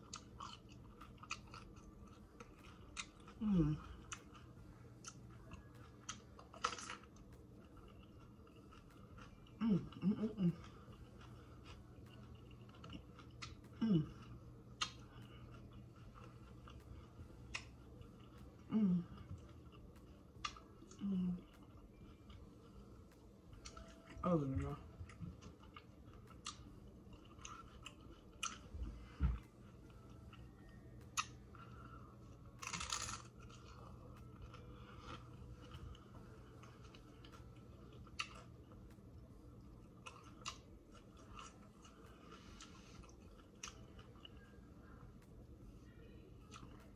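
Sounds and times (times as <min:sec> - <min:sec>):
crunching and chewing taco: 0:00.0 - 0:46.9
person humming mm: 0:03.4 - 0:04.0, 0:09.6 - 0:10.6, 0:13.8 - 0:14.3, 0:18.7 - 0:19.2, 0:21.0 - 0:21.4
taco shell crackling snaps: 0:05.0 - 0:09.3.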